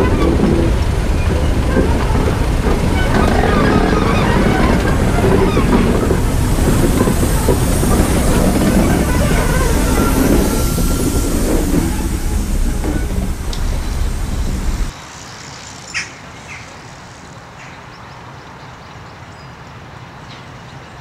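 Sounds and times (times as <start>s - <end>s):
wheels clicking over rail joints: 0.0s - 14.9s
train wheels rumbling on rails: 0.0s - 15.1s.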